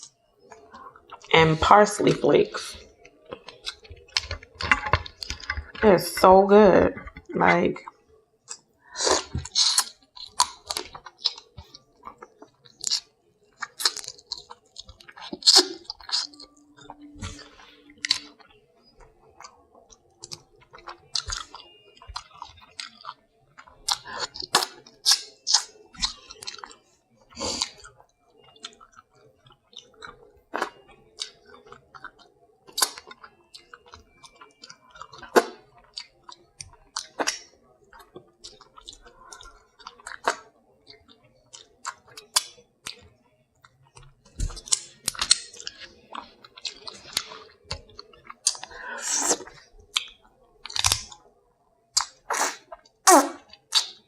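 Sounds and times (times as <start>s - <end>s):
chewing and smacking: 0.0s - 54.0s
crab shell cracking: 8.4s - 17.4s, 19.0s - 54.0s.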